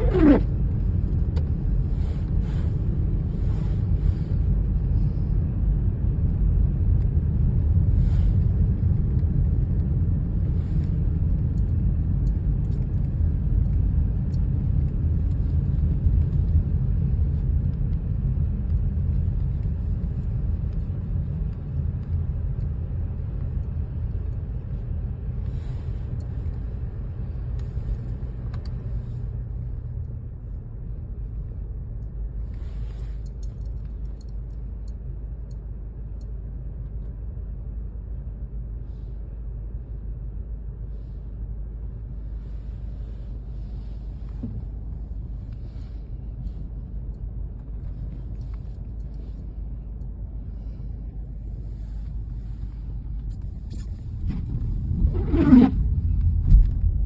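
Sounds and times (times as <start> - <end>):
falling squeak: 0.0 - 0.5, 55.0 - 55.8.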